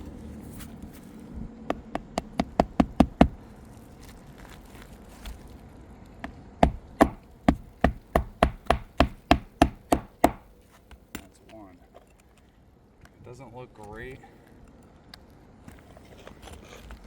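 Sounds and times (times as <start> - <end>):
hammer driving a nail: 1.7 - 3.4, 6.6 - 10.5.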